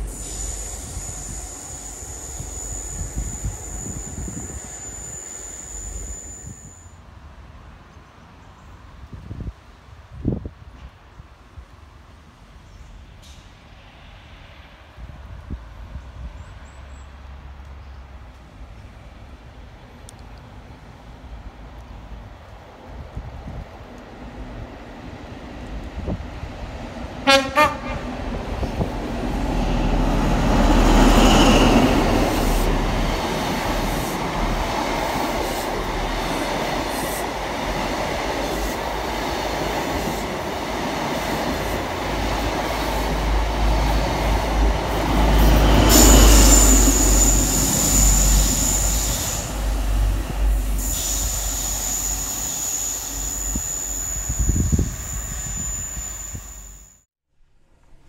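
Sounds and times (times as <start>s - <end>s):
high-pitched squeal: 0.0s - 7.0s, 42.8s - 57.1s
diesel train passing: 0.0s - 8.9s, 11.6s - 56.8s.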